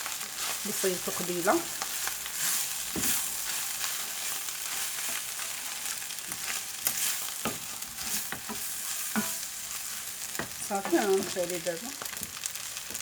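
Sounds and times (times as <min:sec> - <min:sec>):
filling sizzling in a frying pan: 0:00.0 - 0:13.0
utensil scraping and tapping pan: 0:06.3 - 0:09.5.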